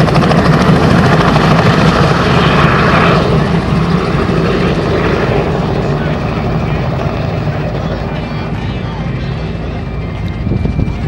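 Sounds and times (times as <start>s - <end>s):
helicopter rotor and engine: 0.0s - 11.0s.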